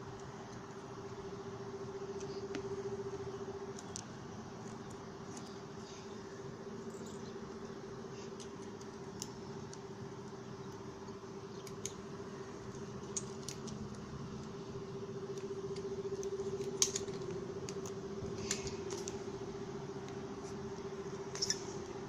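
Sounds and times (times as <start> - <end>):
light clicks: 8.4 - 12.0.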